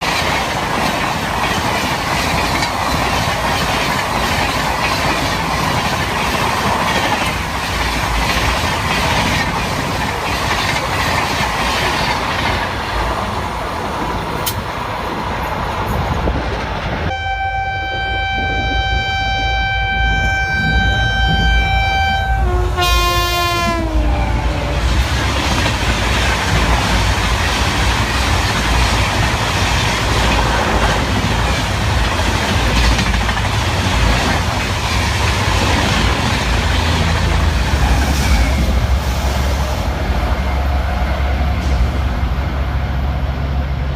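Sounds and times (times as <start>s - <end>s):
train wheels on rails: 0.0s - 43.9s
train horn: 17.1s - 24.8s.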